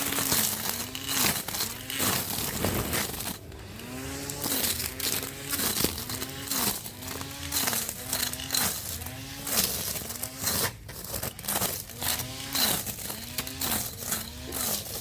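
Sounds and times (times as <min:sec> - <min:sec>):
crackle of cut grass: 0:00.0 - 0:15.0
grass trimmer motor humming: 0:00.0 - 0:15.0.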